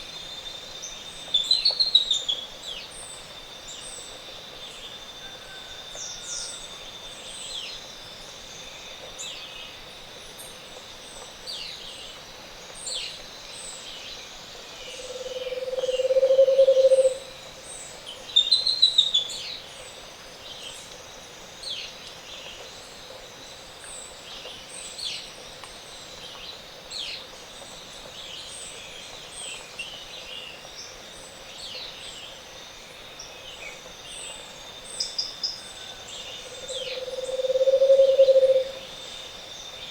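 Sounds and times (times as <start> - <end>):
high insect tone: 0.0 - 39.9
low hollow bird trill: 15.0 - 17.3, 35.8 - 38.9.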